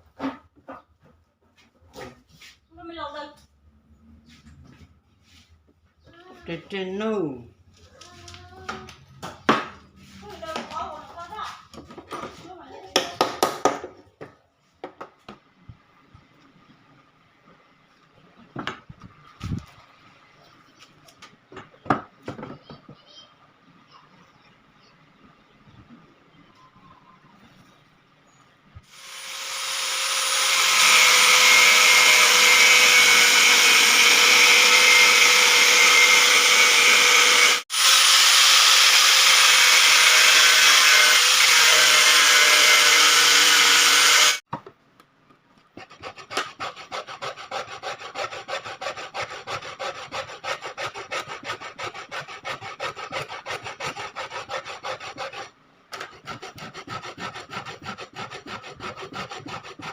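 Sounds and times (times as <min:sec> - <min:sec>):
machine grinding wood: 0:28.9 - 0:44.4
rasping strokes on wood: 0:29.1 - 0:44.4, 0:45.8 - 0:59.9.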